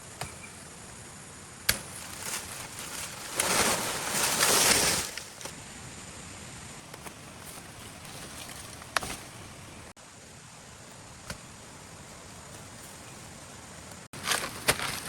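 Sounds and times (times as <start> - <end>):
rushing rustling noise: 1.8 - 5.6.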